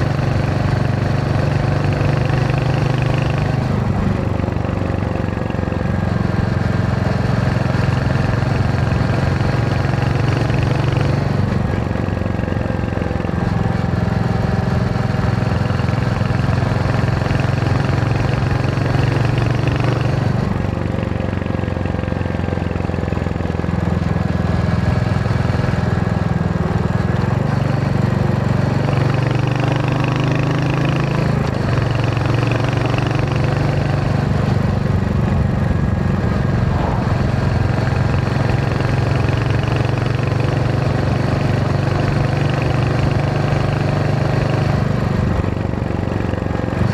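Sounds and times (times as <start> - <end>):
motorcycle engine and exhaust: 0.0 - 46.9.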